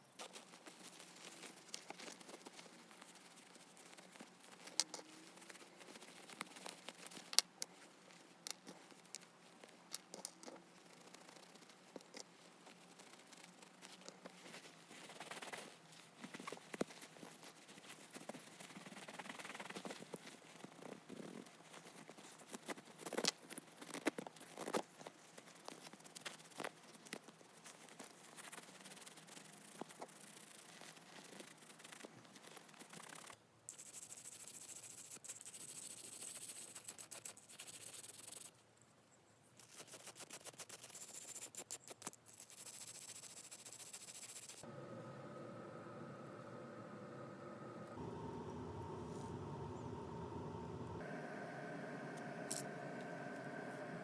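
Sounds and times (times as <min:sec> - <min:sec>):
steady hiss: 0:44.6 - 0:54.0.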